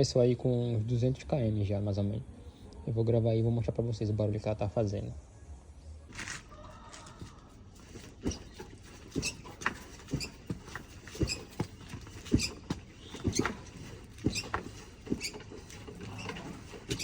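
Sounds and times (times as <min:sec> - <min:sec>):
motorcycle suspension clicking and creaking: 0:06.1 - 0:17.0.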